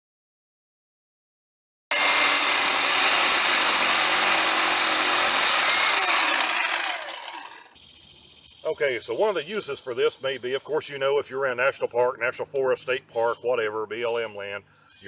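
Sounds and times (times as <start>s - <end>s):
electric chainsaw whining: 1.9s - 7.8s.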